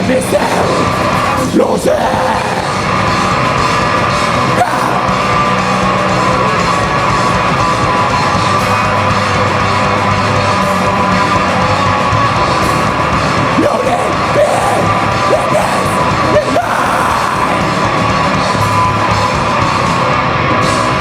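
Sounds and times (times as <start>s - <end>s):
live rock band playing: 0.0s - 21.0s
rising yells or whoops: 4.5s - 5.6s, 13.6s - 18.0s.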